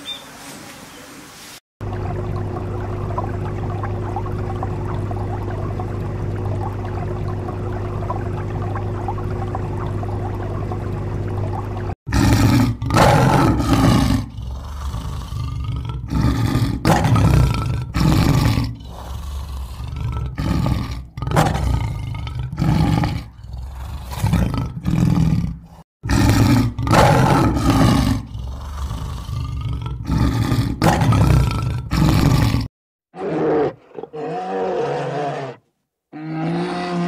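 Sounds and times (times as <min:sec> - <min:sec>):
lion roaring: 0:12.1 - 0:37.0.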